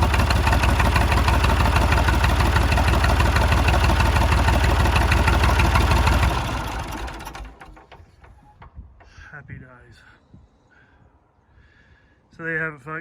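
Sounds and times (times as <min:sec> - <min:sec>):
diesel engine idling clatter: 0:00.0 - 0:09.3.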